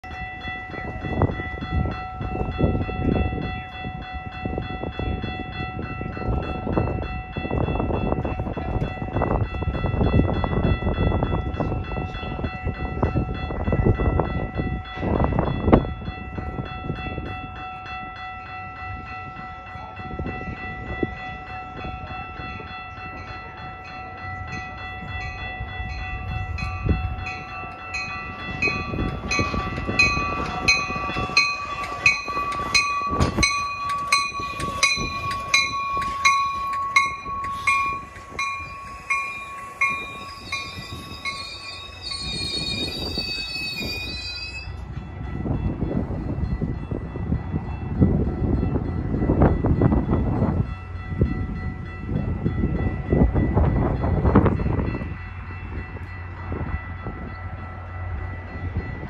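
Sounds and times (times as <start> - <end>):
bell ringing: 0.0 - 59.0
train arriving: 0.0 - 59.0
high brake squeal: 40.3 - 44.8.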